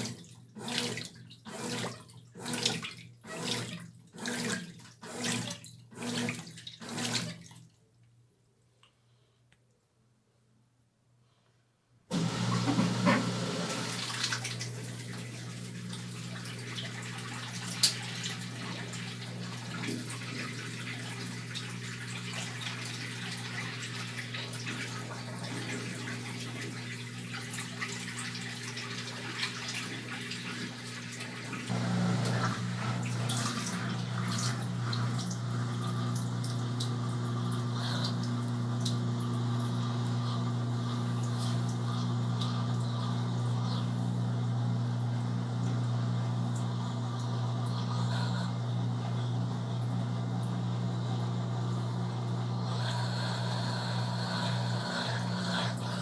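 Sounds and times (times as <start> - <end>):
water pouring into tub: 0.0 - 7.5, 12.1 - 49.0
washing machine low hum: 0.0 - 7.7, 12.1 - 56.0.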